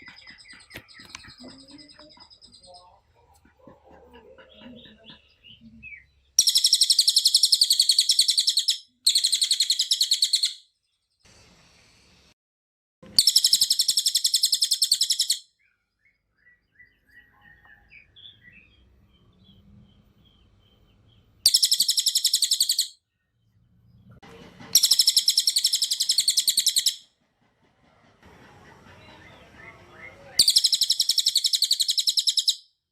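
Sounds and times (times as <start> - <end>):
faint bird chirps: 0.0 - 11.6, 13.2 - 24.1, 24.7 - 27.0, 28.5 - 32.8
songbird singing rapid notes: 4.5 - 10.6, 13.2 - 22.9, 24.8 - 27.0, 29.6 - 32.6.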